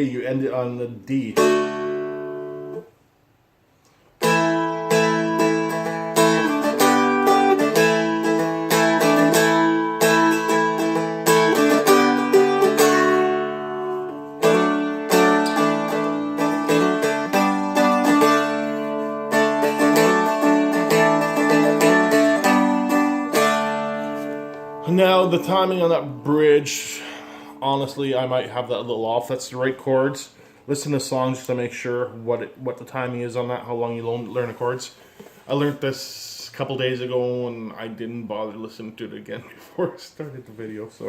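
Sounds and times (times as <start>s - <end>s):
dulcimer strummed with a pick: 1.4s - 2.9s, 4.2s - 26.2s.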